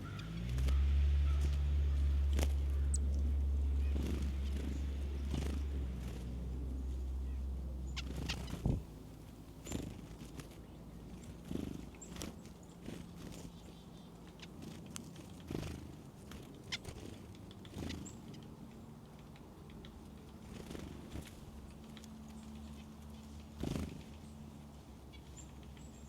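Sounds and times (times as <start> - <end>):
low motor hum: 0.0 - 12.4.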